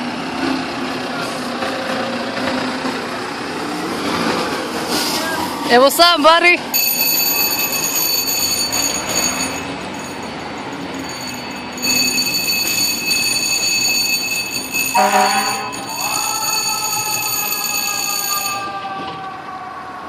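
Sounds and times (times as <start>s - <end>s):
mechanical siren winding: 6.8s - 10.1s, 11.0s - 18.8s
fire engine horn blast: 15.0s - 16.3s.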